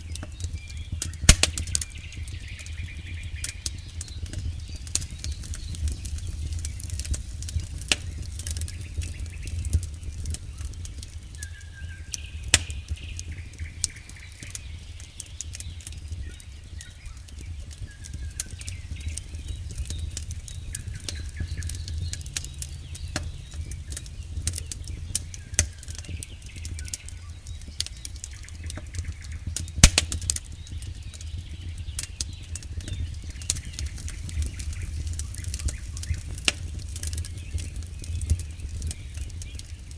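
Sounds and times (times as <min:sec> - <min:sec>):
crackling and popping wood: 0:00.0 - 0:39.9
low rumble of flames: 0:00.0 - 0:39.9.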